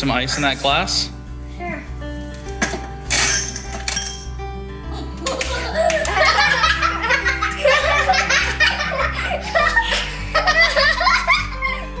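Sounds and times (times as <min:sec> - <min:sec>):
background music: 0:00.0 - 0:12.0
hearty laughter: 0:05.0 - 0:12.0.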